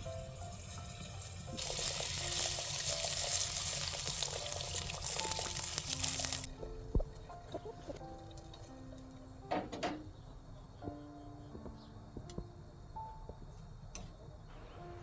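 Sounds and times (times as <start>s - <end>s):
water running and splashing: 0.0s - 8.7s
soft background music: 0.0s - 15.0s.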